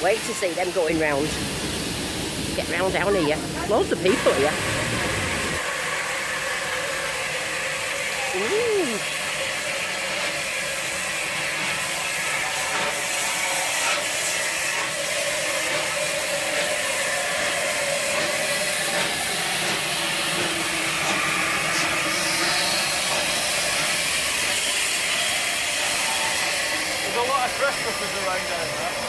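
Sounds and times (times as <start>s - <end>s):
steam hissing: 0.0s - 29.0s.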